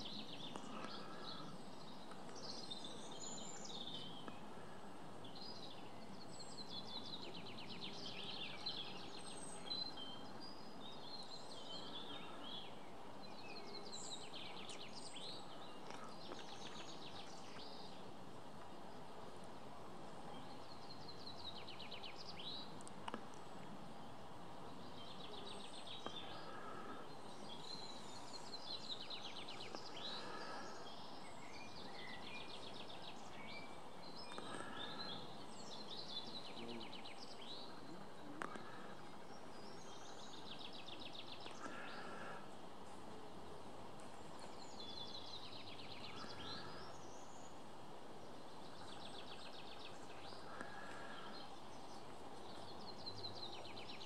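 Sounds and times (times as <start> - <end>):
background hiss: 0.0 - 54.0
songbirds trilling: 0.0 - 54.0.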